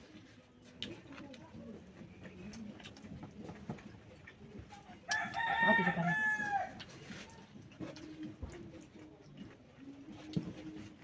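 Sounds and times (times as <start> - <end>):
rooster crowing: 5.2 - 6.8.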